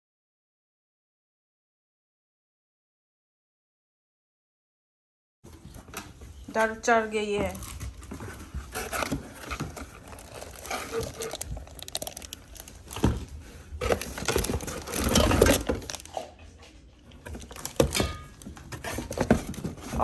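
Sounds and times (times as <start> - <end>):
plastic packaging crinkling: 7.6 - 16.2, 17.2 - 20.0
knocks of parts and cardboard: 12.8 - 16.1, 17.2 - 20.0.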